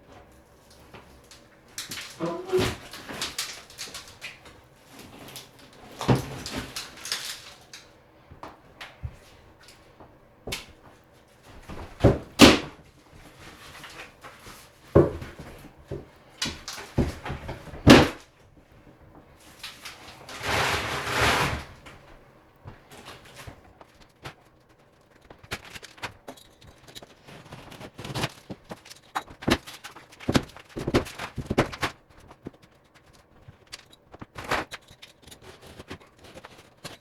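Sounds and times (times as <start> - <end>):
scraping and rustling: 0.0 - 7.9, 19.2 - 37.0
drywall cracking and knocking: 0.2 - 9.4, 10.0 - 37.0.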